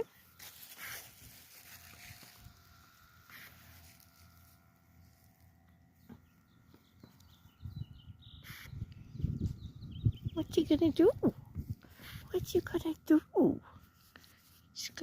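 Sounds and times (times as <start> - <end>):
soft rustle: 0.3 - 5.6.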